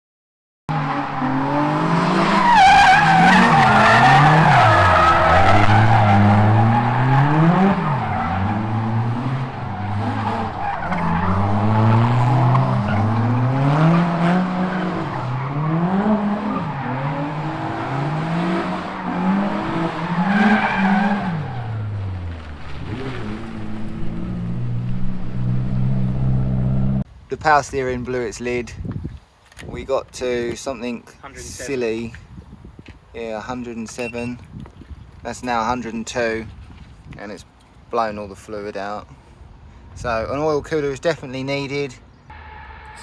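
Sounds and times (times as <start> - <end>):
car engine revving: 0.7 - 27.1
tyre squeal: 33.8 - 34.4.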